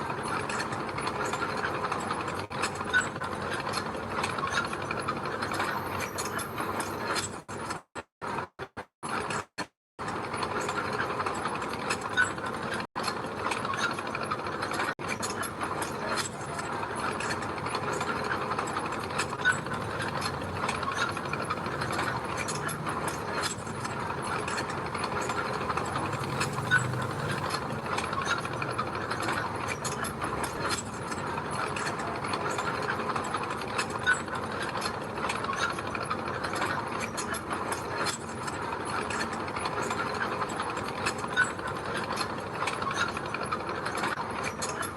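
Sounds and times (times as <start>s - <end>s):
steel tracks clattering: 10.4s - 44.9s
bulldozer engine running: 13.8s - 34.3s.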